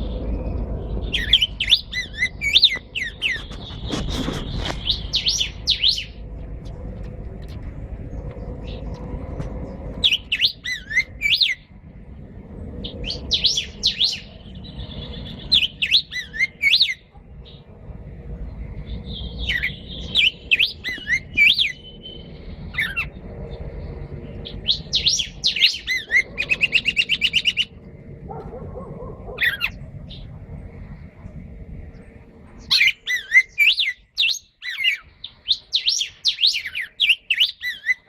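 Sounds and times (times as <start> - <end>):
bird trill: 0.0 - 6.2, 9.6 - 11.8, 12.8 - 17.7, 18.8 - 27.8, 28.4 - 30.4, 32.6 - 38.0
songbirds singing: 0.0 - 38.0.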